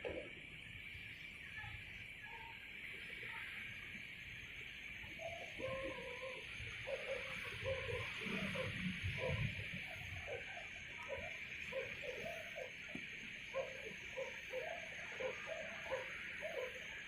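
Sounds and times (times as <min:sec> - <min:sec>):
high insect chorus: 0:00.0 - 0:17.0.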